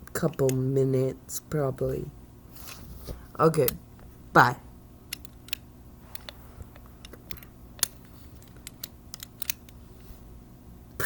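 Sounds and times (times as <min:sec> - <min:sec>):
handling clicks and taps: 0:05.1 - 0:09.8.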